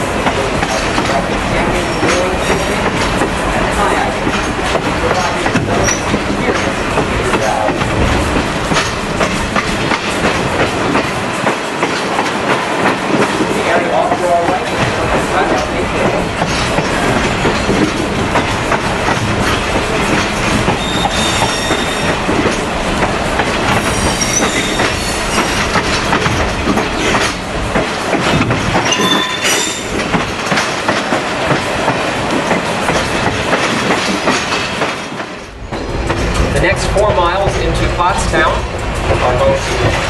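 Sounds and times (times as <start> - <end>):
train wheels on rails: 0.0 - 40.0
high-pitched wheel squeals: 20.8 - 22.2, 23.8 - 25.6.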